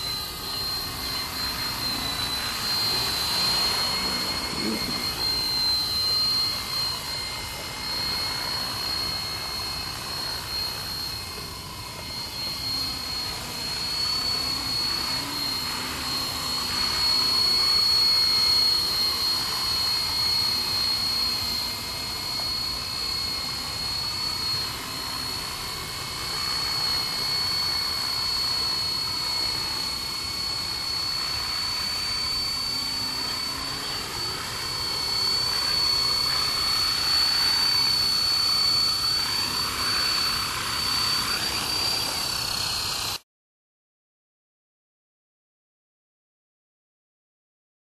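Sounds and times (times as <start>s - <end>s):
model helicopter whine: 0.0s - 43.2s.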